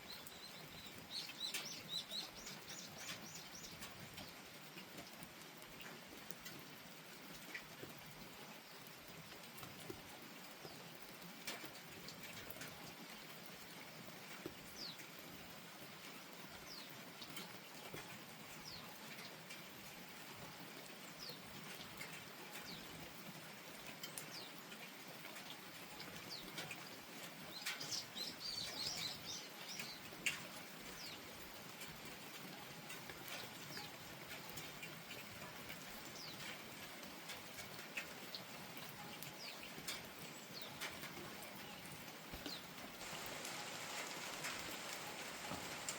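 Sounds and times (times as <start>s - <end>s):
small birds chirping: 0.0s - 4.4s, 26.2s - 31.3s, 36.0s - 36.6s, 38.3s - 45.9s
raindrops ticking on surfaces: 0.0s - 45.9s
soft rainfall: 0.0s - 45.9s.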